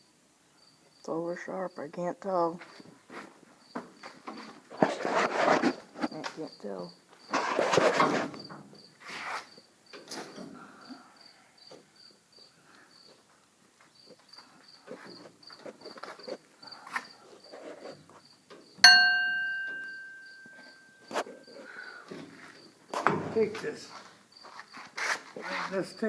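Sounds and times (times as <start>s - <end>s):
cricket chirping: 0.0s - 1.9s, 3.6s - 26.0s
knocks and handling noise: 14.9s - 25.4s
metal struck ringing: 18.8s - 21.1s.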